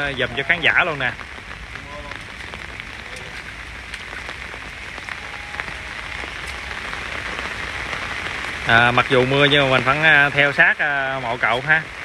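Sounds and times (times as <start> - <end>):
sharp ticks of raindrops: 0.0 - 12.0
steady rain falling: 0.0 - 12.0.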